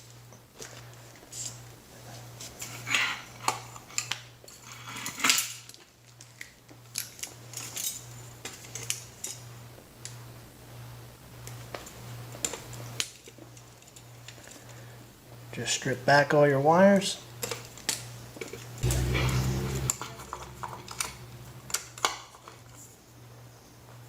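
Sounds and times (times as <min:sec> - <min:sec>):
low steady hum: 0:18.2 - 0:24.0.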